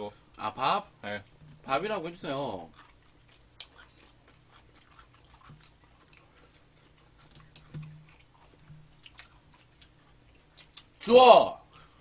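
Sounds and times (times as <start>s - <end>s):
low steady hum: 0.0s - 12.0s
faint chewing and mouth clicks: 1.0s - 1.9s, 2.5s - 11.0s.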